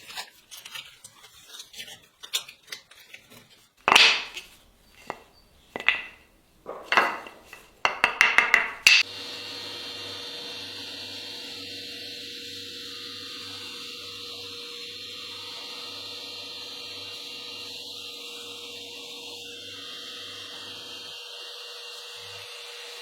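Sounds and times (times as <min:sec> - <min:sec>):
tools knocking on work: 0:05.8 - 0:09.0
steady machine hum: 0:07.8 - 0:23.0.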